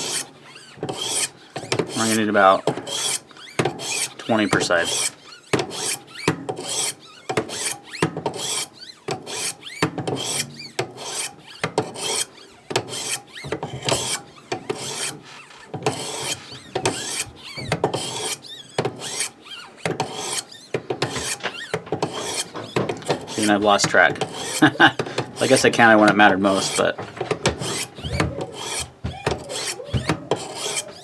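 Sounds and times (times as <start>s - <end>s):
sharpening stone scraping knife blade: 0.9s - 2.3s, 2.9s - 4.2s, 4.8s - 15.2s, 20.0s - 23.6s, 24.2s - 25.7s, 27.6s - 31.0s.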